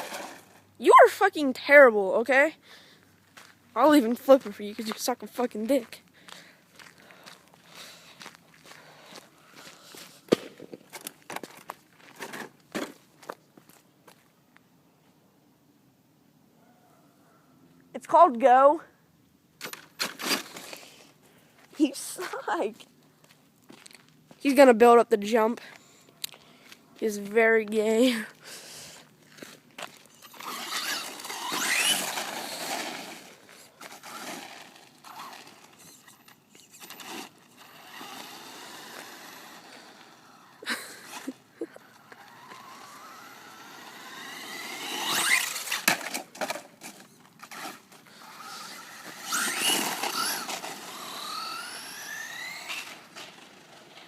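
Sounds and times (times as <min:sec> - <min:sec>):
electric rc car motor whining: 0:00.0 - 0:00.6, 0:30.0 - 0:54.0.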